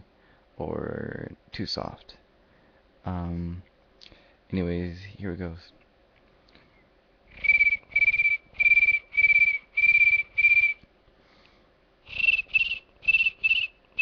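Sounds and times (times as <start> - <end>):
person whistling cricket chirps: 7.3 - 10.8, 12.1 - 14.0.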